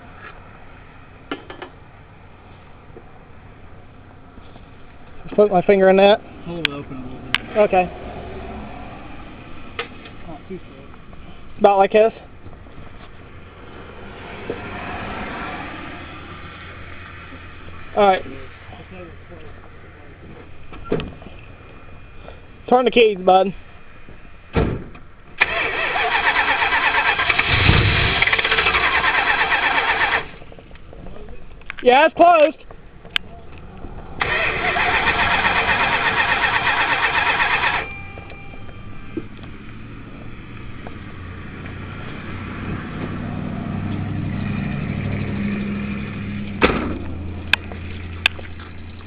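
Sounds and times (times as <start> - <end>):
engine cranked by starter motor: 25.4 - 30.5, 34.2 - 38.3.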